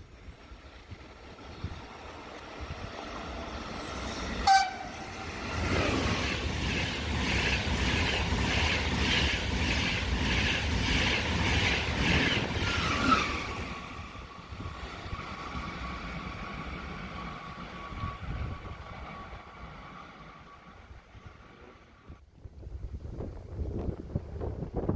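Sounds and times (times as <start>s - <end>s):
train rumbling and clattering: 0.0s - 22.2s.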